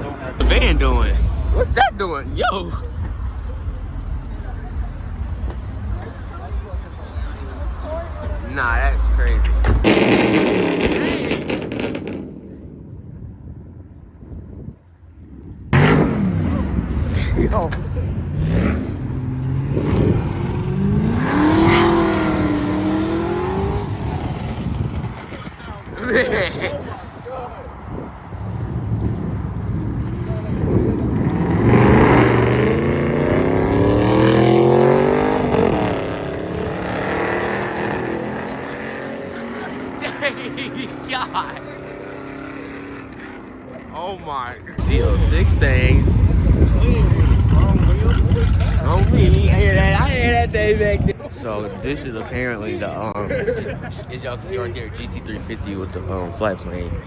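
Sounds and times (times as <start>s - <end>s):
car engine and exhaust crackling: 0.0s - 12.8s, 27.7s - 43.1s, 44.7s - 51.2s.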